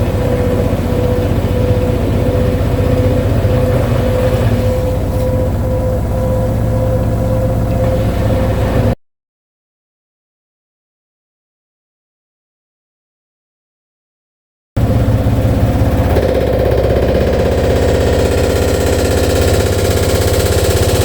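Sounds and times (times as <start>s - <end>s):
heavy vibrating rumble: 0.0s - 9.0s, 14.8s - 21.0s
washing machine spinning whine: 0.0s - 9.0s, 14.8s - 21.0s.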